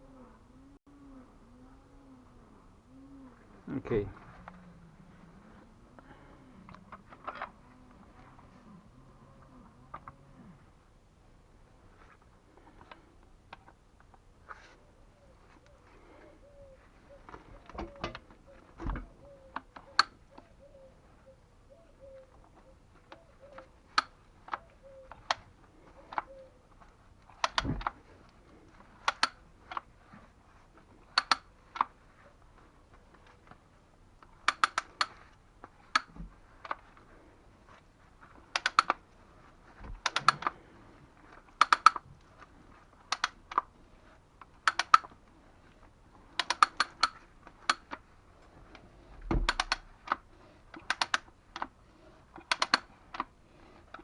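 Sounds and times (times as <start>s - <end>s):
sharp clicking: 27.3s - 28.0s, 29.0s - 29.9s, 31.2s - 31.9s, 34.2s - 35.2s, 35.9s - 36.8s, 38.5s - 39.0s, 40.0s - 40.6s, 41.5s - 42.0s, 43.1s - 43.7s, 44.4s - 45.2s, 46.4s - 48.0s, 48.7s - 51.8s, 52.4s - 53.3s.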